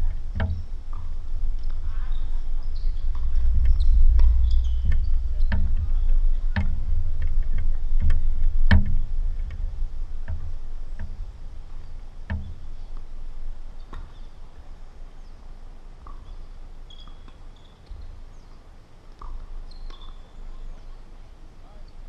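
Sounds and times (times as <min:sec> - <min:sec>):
low rumble: 0:00.0 - 0:16.0
faint high-pitched chirps: 0:00.5 - 0:06.5, 0:13.8 - 0:22.0.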